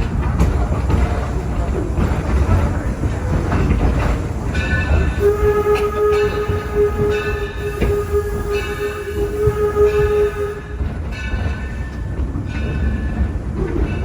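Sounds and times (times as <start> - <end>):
train rolling rumble: 0.0 - 14.0
steam whistle blast: 5.2 - 10.8.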